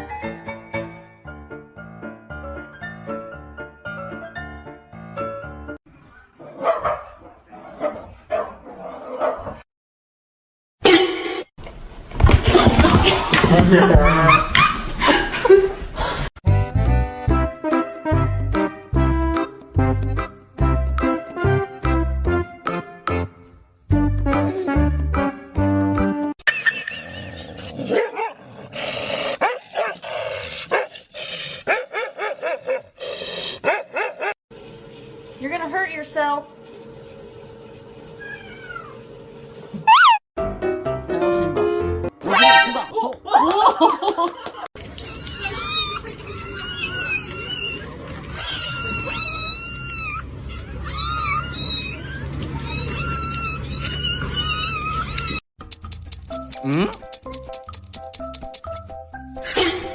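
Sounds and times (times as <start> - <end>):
dog barking and yipping: 6.1 - 9.6, 27.9 - 28.4, 29.4 - 30.0, 30.7 - 30.9, 31.7 - 33.0, 33.6 - 34.4, 39.9 - 40.2
cat mewing: 38.2 - 39.0, 45.0 - 55.4.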